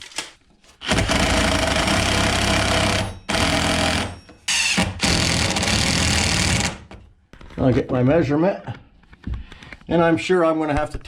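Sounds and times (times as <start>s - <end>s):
power driver driving screws: 0.7s - 6.9s.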